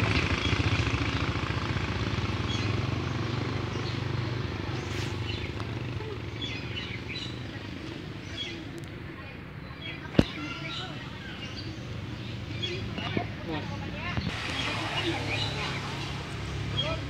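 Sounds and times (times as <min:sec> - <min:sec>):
motorcycle engine idling: 0:00.0 - 0:08.7.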